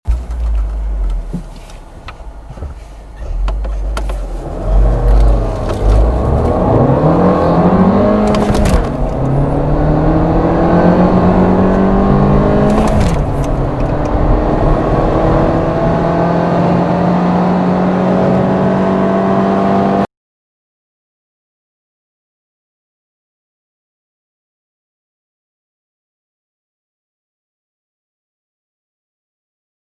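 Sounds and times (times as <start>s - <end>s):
car engine accelerating hard: 0.1s - 20.1s.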